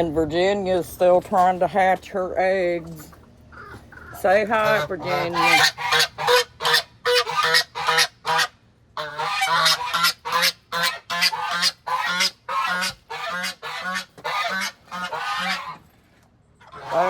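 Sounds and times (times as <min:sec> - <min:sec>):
goose honking: 0:03.6 - 0:15.8, 0:16.6 - 0:17.0.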